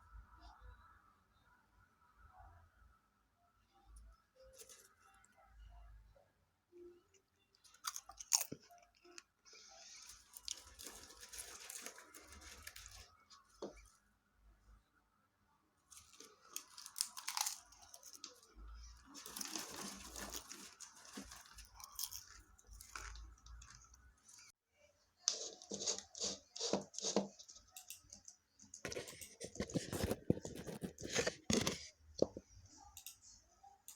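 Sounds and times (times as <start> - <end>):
person chewing popcorn: 7.6 - 13.9, 16.0 - 24.5
plastic snack bag crackling: 9.8 - 13.8, 16.0 - 24.5.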